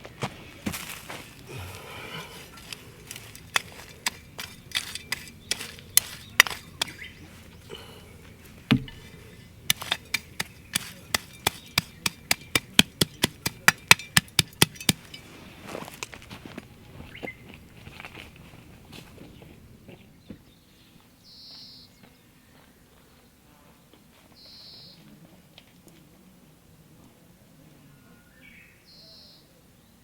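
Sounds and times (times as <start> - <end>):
chopping knocks: 2.6 - 7.1, 8.7 - 15.1.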